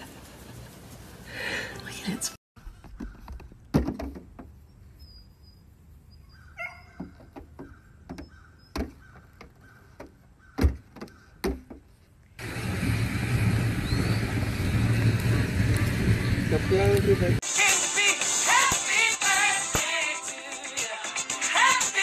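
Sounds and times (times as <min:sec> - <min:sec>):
loud steady rushing noise: 0:12.4 - 0:17.4.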